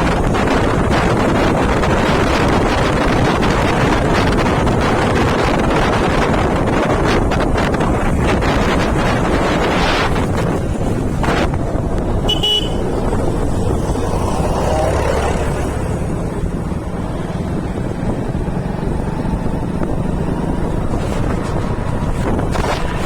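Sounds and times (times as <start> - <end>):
motorcycle engine rumble: 0.0 - 23.0
wind buffeting microphone: 0.0 - 23.0
horn toot: 12.2 - 13.0.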